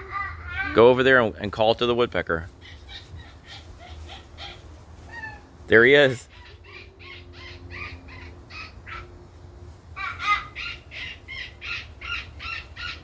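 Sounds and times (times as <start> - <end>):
woodpecker calling: 6.2 - 9.1, 10.0 - 13.0.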